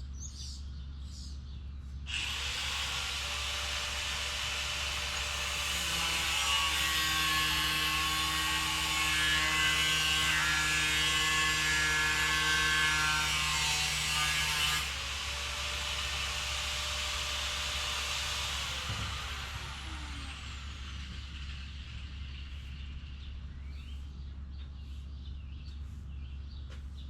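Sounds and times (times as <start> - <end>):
power tool grinding sheet metal: 2.1 - 22.8.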